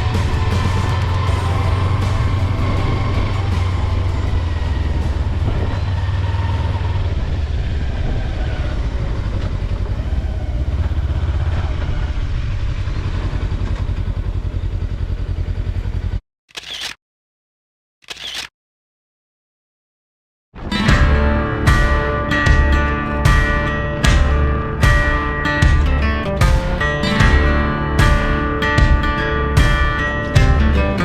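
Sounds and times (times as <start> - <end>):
wind noise: 0.0 - 10.9
motorcycle engine running: 0.0 - 16.2, 20.9 - 31.0
road noise: 0.0 - 16.2.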